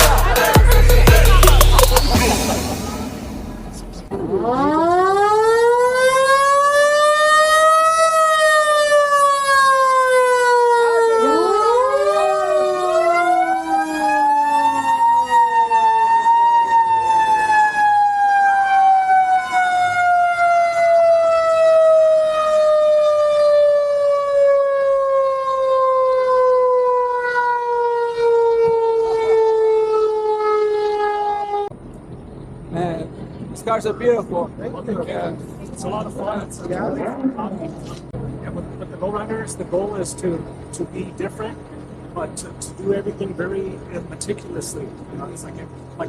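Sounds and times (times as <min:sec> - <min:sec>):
siren wailing: 0:00.0 - 0:31.8, 0:36.6 - 0:38.0.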